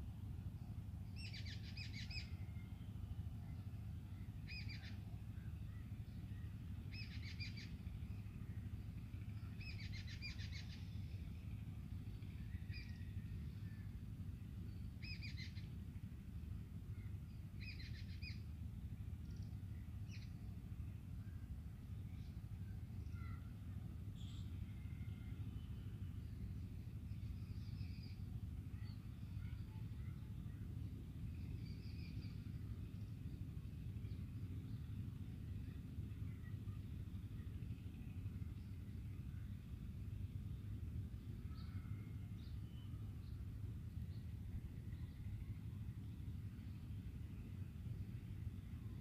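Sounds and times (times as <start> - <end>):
steady low hum: 0.0 - 49.0
small bird chirping: 1.1 - 2.4, 4.2 - 5.1, 6.9 - 7.9, 9.4 - 11.1, 14.8 - 15.7, 17.6 - 18.5, 24.1 - 30.6.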